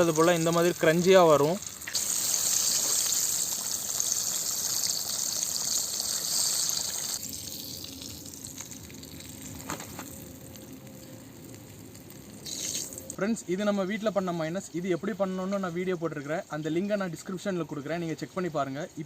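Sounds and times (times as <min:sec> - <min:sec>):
chicken deep-frying in oil: 0:00.0 - 0:13.2.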